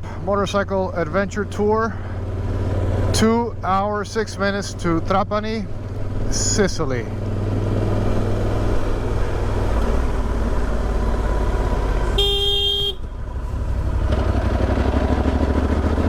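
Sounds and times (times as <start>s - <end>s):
motorcycle engine running: 0.0s - 16.0s
horn honk: 12.1s - 13.1s.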